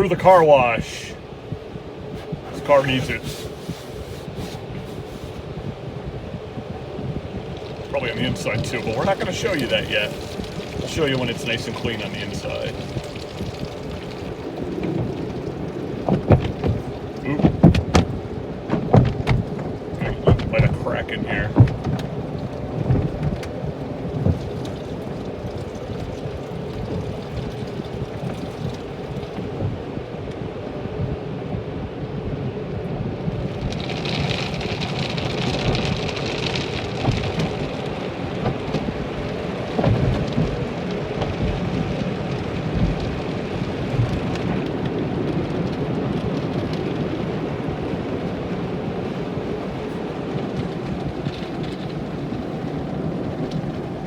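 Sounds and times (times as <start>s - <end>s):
water spraying on car: 0.0s - 30.2s, 32.6s - 54.0s
hissing spray: 2.2s - 5.4s
sharp thumps: 16.0s - 20.9s.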